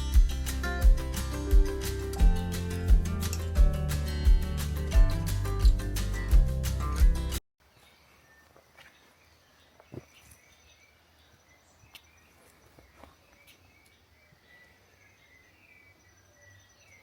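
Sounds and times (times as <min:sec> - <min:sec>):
distant bird chirps: 0:07.6 - 0:17.0.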